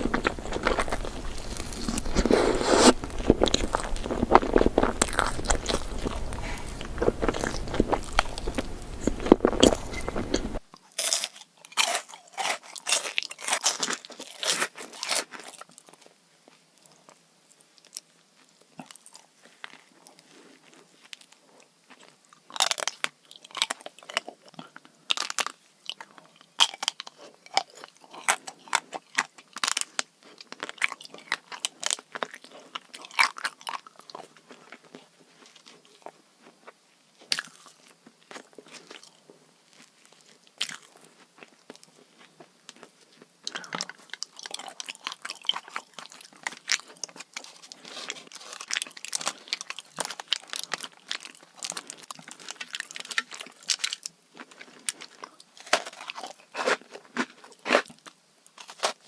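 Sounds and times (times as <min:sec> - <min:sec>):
wet chewing clicks: 0:00.0 - 0:10.6
crunching sweets: 0:00.0 - 0:16.0, 0:20.7 - 0:59.0.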